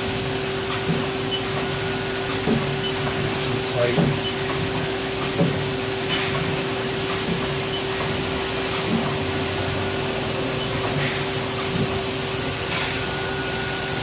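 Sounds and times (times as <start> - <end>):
lathe machine humming: 0.0 - 14.0.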